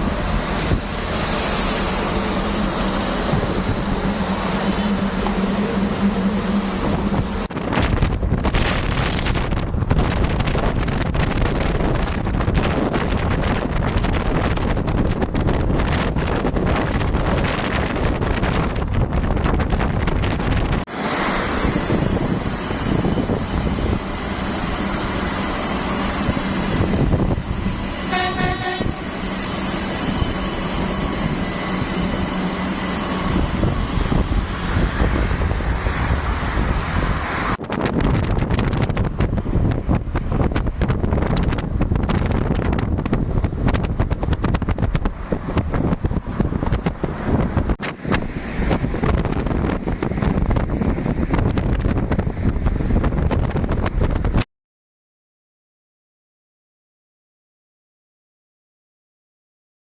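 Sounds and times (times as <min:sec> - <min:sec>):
electric train running: 0:00.0 - 0:37.6
wind buffeting microphone: 0:00.0 - 0:54.5
short pulsing horn: 0:28.0 - 0:29.3.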